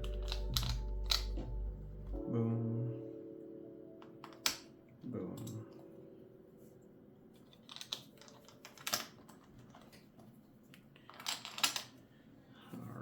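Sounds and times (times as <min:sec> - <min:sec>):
plastic bricks clicking: 0:00.0 - 0:01.4, 0:07.6 - 0:10.0, 0:11.0 - 0:12.0.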